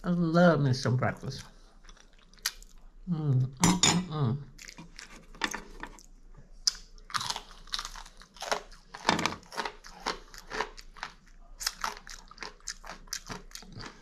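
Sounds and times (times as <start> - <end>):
person chewing crunchy food: 1.7 - 2.9, 4.5 - 6.1, 6.7 - 14.0.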